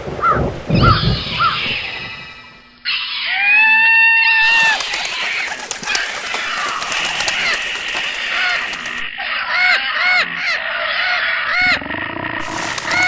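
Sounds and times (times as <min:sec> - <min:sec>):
hissing noise: 0:12.4 - 0:13.0.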